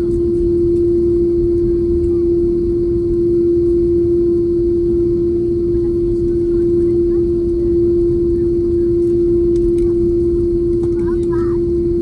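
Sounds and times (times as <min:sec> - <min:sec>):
jet engines inside cabin: 0:00.0 - 0:12.0.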